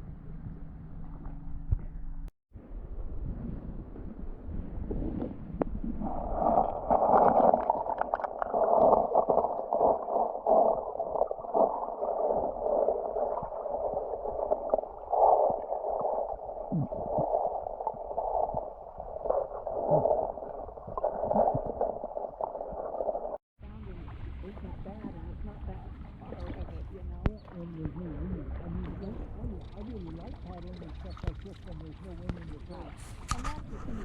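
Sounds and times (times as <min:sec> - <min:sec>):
muffled water gurgling and sloshing: 0:00.0 - 0:34.0.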